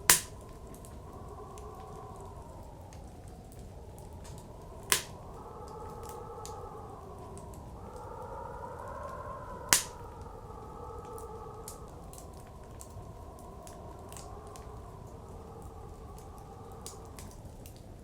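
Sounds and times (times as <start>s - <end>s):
loud sharp fire pops: 0.0s - 0.4s, 4.9s - 5.2s, 9.7s - 10.0s
blizzard wind blowing: 0.0s - 18.0s
wood fire crackling: 0.0s - 18.0s.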